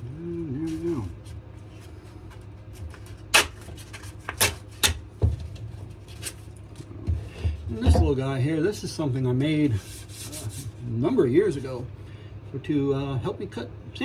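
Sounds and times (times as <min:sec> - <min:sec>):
man humming: 0:00.0 - 0:01.2
tools knocking on a workbench: 0:07.1 - 0:08.2.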